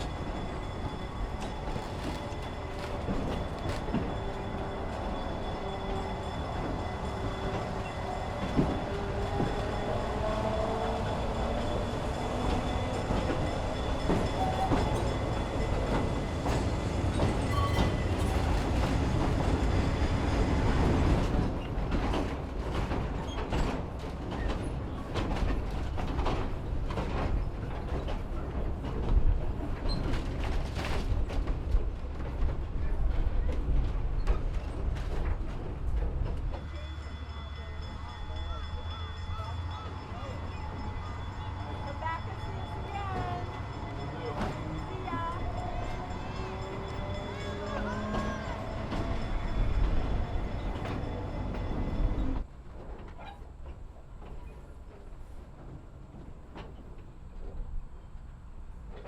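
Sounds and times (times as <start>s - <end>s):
wheel squeal: 0.0s - 19.0s
wheels clicking on rails: 0.0s - 57.8s
railroad car rumbling on track: 0.0s - 59.0s.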